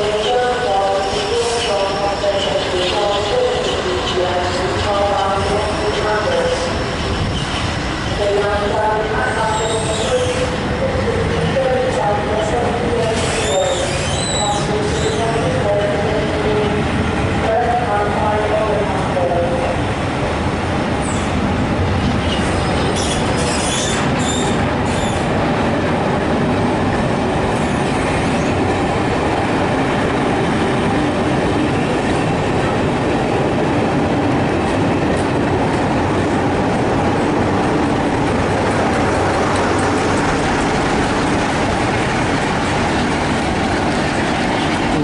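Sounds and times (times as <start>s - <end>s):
train wheels rumbling on rails: 0.0s - 45.0s
high wheel squeals: 13.2s - 15.2s, 22.3s - 25.2s.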